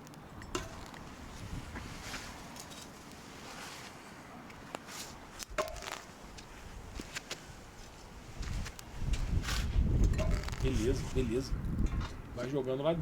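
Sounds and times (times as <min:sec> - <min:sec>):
light clicks and rustling: 0:01.8 - 0:07.4.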